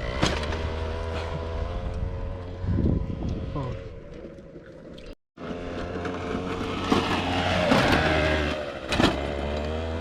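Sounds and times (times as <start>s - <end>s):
moped engine revving: 0.0s - 4.0s, 5.4s - 10.0s.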